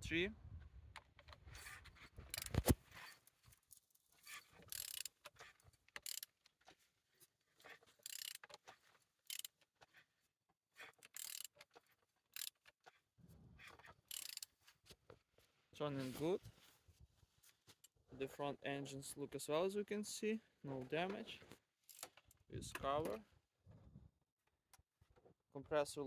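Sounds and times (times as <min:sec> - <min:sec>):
ratchet wrench clicking: 0:04.7 - 0:05.2, 0:06.0 - 0:06.3, 0:08.0 - 0:08.5, 0:09.3 - 0:09.5, 0:11.2 - 0:11.5, 0:14.1 - 0:14.5.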